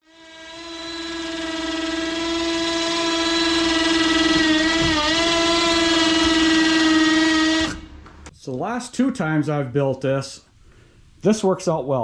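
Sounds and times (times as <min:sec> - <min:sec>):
long steady horn-like tone: 0:00.0 - 0:07.8.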